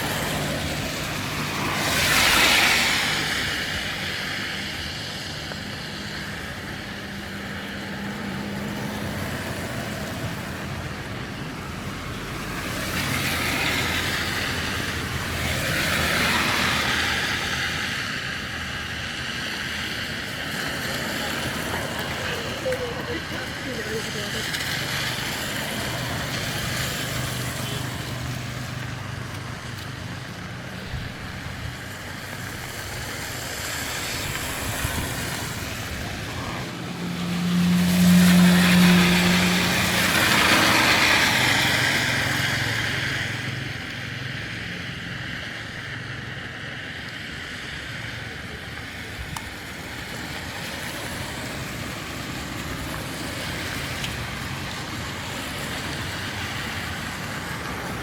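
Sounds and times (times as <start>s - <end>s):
vehicle passing close: 0.0s - 46.9s
city road traffic: 0.0s - 58.0s.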